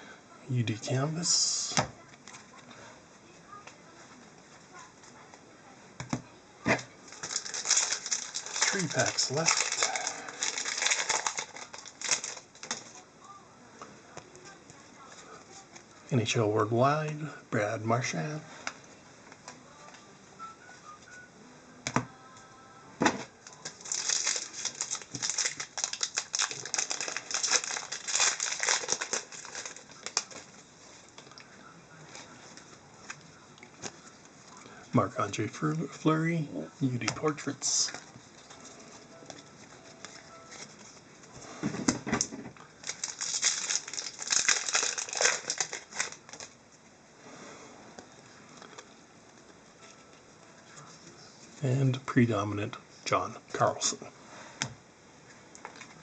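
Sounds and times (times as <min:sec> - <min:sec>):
foil wrapper crinkling: 0:07.0 - 0:13.0, 0:23.4 - 0:31.4, 0:37.0 - 0:41.3, 0:42.7 - 0:46.6.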